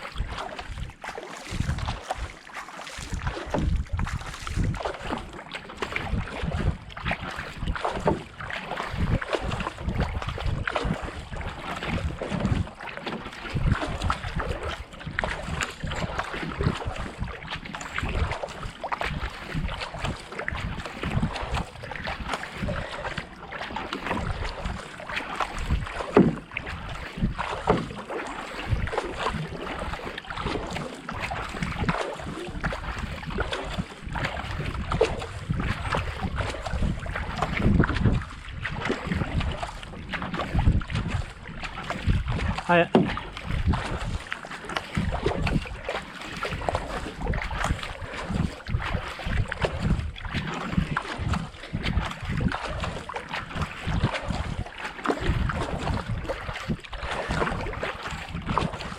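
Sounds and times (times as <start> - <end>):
wind noise on microphone: 0.0 - 12.8, 13.4 - 23.3, 24.0 - 24.8, 25.4 - 28.0, 28.6 - 58.9
kayak paddles splashing in water: 0.0 - 58.9.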